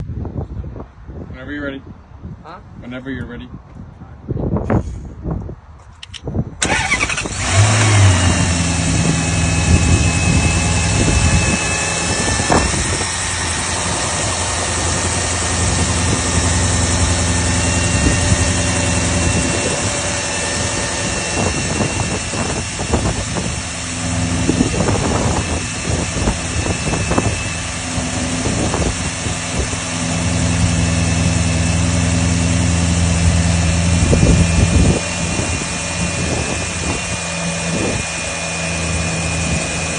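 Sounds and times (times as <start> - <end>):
starter cranking: 6.0 - 28.6
car engine revving and idling: 6.6 - 39.9.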